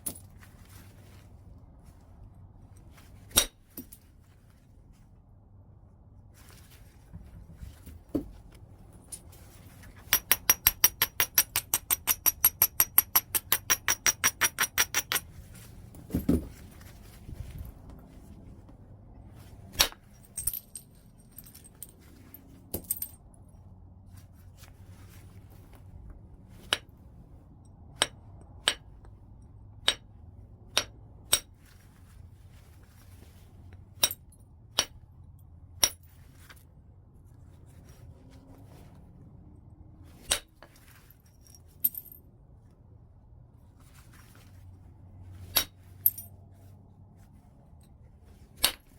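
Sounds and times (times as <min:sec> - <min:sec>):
sharp clicking strikes on stone: 0:10.1 - 0:15.3
dull thump: 0:16.0 - 0:16.7.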